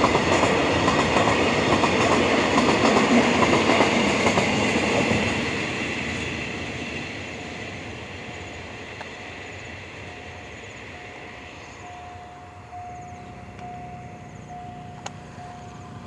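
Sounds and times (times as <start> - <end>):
freight train rumbling: 0.0 - 16.0
thin high tone: 10.0 - 16.0.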